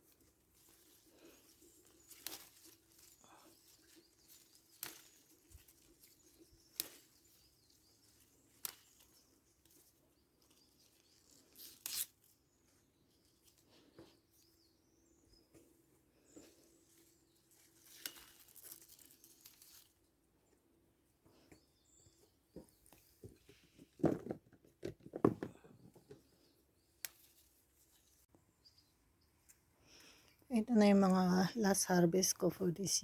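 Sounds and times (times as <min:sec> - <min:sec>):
leaves rustling: 0:00.0 - 0:14.5, 0:15.5 - 0:20.3, 0:26.8 - 0:28.3
pepper stems snapping: 0:02.0 - 0:03.2, 0:04.2 - 0:07.4, 0:08.2 - 0:09.8, 0:11.5 - 0:12.3, 0:17.8 - 0:19.9, 0:27.0 - 0:27.5.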